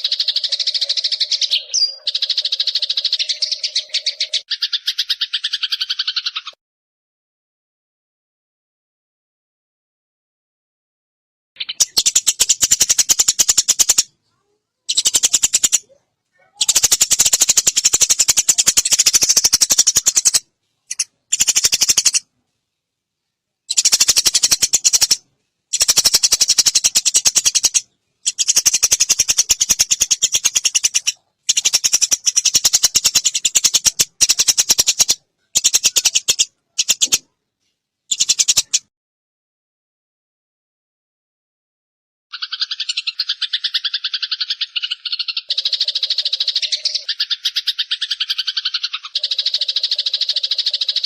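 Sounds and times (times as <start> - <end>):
songbird rattling trill: 0.0 - 6.5, 11.6 - 14.1, 14.9 - 15.9, 16.6 - 22.3, 23.7 - 37.2, 38.1 - 38.8, 42.3 - 51.0.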